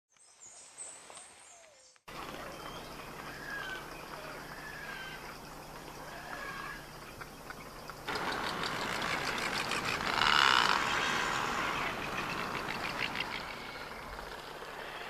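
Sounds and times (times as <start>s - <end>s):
bird chirps: 0.1s - 8.4s.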